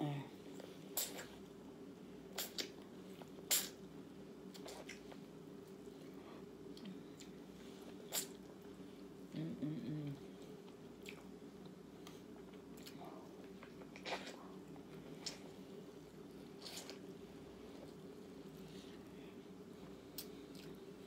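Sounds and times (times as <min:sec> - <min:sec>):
steady low hum: 0:00.0 - 0:21.0
chewing with wet mouth clicks: 0:02.4 - 0:03.8, 0:04.5 - 0:05.8, 0:10.6 - 0:15.5, 0:20.2 - 0:20.8.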